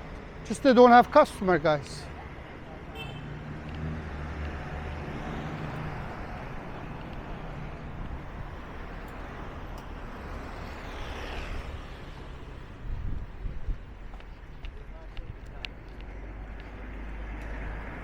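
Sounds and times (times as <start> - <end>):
outdoor background noise: 0.0 - 18.0
vehicle engine passing: 3.3 - 12.7.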